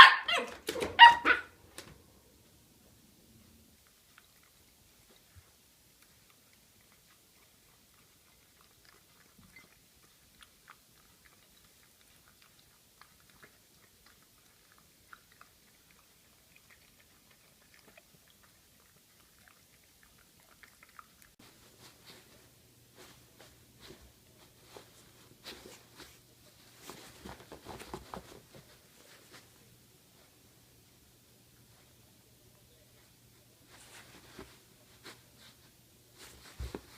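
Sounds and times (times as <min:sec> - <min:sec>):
low steady hum: 0:01.4 - 0:36.9
puppy chewing: 0:03.7 - 0:30.5.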